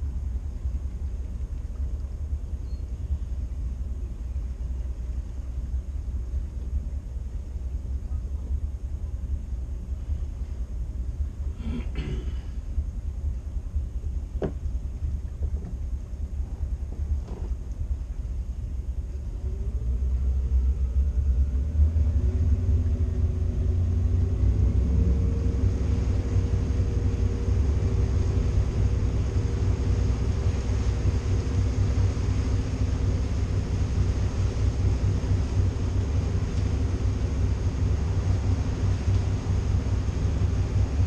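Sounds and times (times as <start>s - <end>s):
motorboat engines rumbling: 0.0s - 41.0s.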